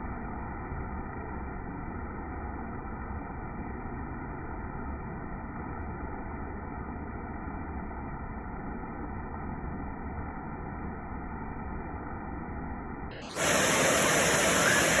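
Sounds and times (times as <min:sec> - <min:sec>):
rain hissing: 0:13.2 - 0:15.0.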